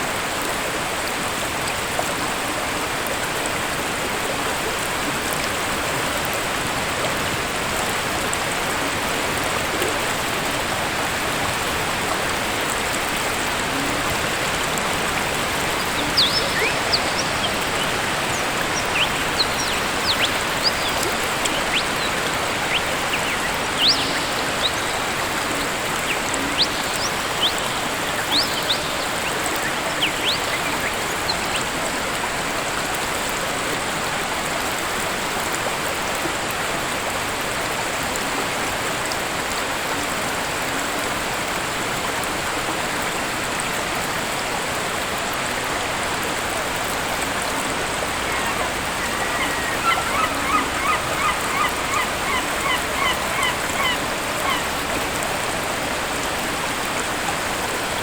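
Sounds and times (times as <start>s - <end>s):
waterfall rushing: 0.1s - 36.1s, 41.1s - 58.0s
birds chirping: 13.5s - 32.0s, 46.6s - 55.0s.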